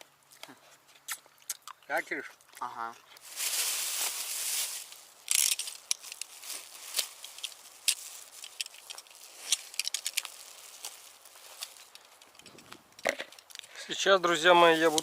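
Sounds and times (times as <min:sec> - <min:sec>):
small clicks and crackles: 0:04.8 - 0:13.8, 0:14.8 - 0:15.0.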